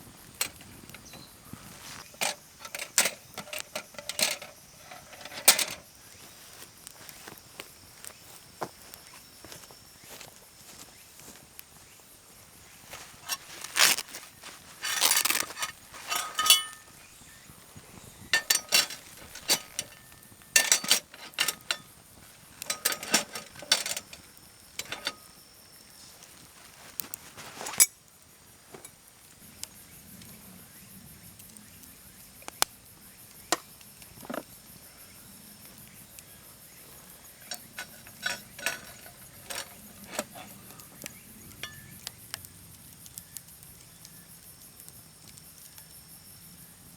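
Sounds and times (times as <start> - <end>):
metal cookware clinking: 0.4 - 5.9, 14.8 - 17.2, 18.0 - 22.0, 22.6 - 25.3, 37.4 - 42.0.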